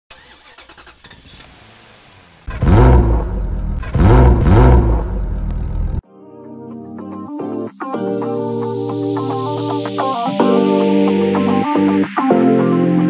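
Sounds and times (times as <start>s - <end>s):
car engine revving: 0.2s - 6.0s
music: 6.0s - 13.0s.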